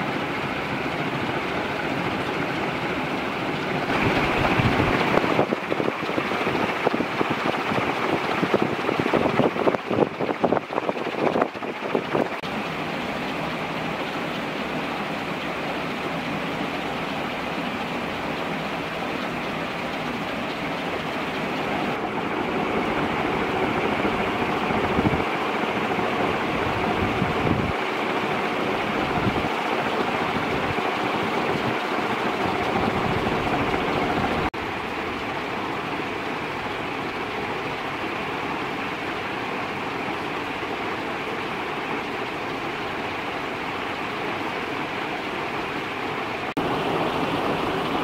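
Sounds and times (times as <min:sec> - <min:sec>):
ceiling fan air rushing: 0:00.0 - 0:48.0
wind buffeting microphone: 0:03.0 - 0:12.4, 0:21.9 - 0:27.9, 0:28.6 - 0:34.5.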